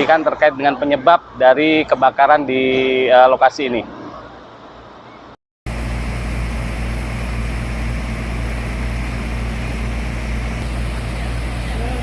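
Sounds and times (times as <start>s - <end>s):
even hiss: 5.7s - 12.0s
large engine droning: 5.7s - 12.0s.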